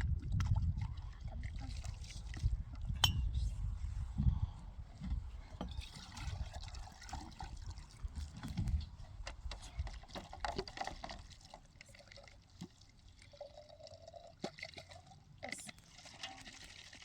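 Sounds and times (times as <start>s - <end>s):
water splashing and trickling: 0.0s - 3.4s, 5.6s - 17.0s.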